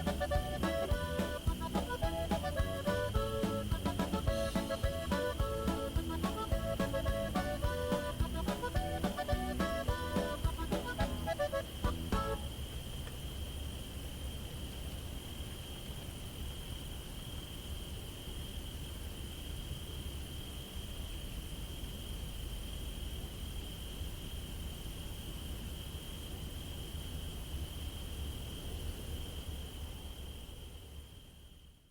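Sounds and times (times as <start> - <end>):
high insect chirring: 0.0 - 12.7.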